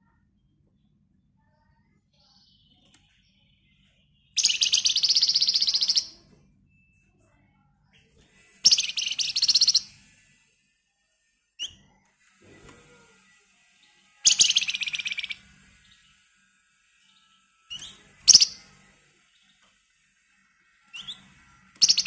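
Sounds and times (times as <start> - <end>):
songbird rapid rattling trills: 4.4 - 6.2, 8.6 - 9.9, 14.2 - 16.0, 17.7 - 18.7, 21.8 - 22.0.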